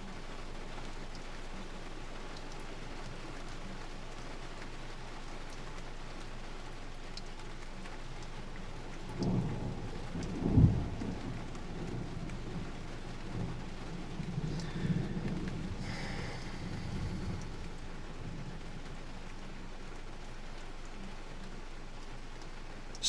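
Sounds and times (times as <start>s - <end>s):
heavy rain falling: 0.0s - 23.0s
thunder rumbling: 8.8s - 19.6s.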